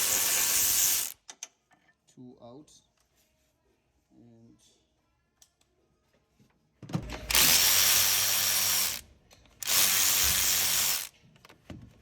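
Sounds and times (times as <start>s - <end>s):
cordless electric ratchet running: 0.0s - 1.2s, 7.3s - 9.0s, 9.6s - 11.1s.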